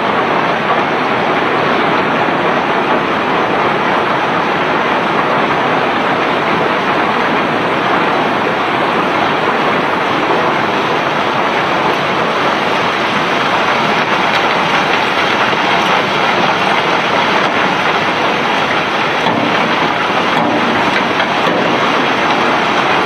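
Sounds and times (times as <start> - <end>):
cobblestones being unloaded: 6.0 - 23.0.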